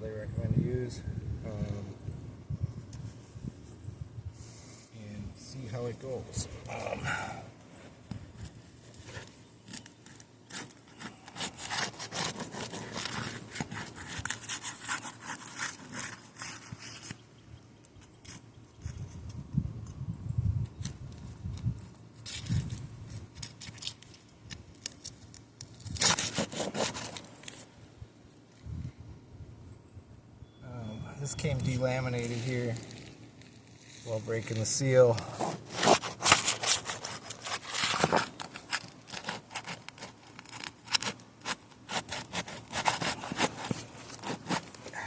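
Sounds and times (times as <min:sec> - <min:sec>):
roof shingle scraping and tearing: 0:06.0 - 0:17.2, 0:22.2 - 0:27.7, 0:31.6 - 0:45.0.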